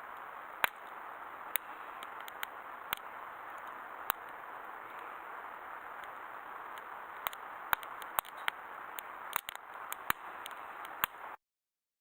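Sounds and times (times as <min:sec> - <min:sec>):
fire hissing: 0:00.0 - 0:11.4
fire popping and crackling: 0:00.0 - 0:11.4.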